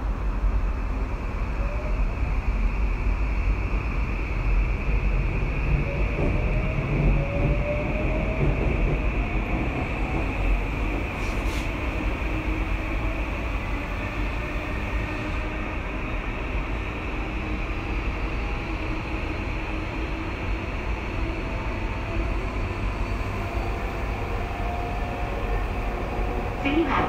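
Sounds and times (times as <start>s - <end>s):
train wheels rumbling: 2.6s - 27.0s.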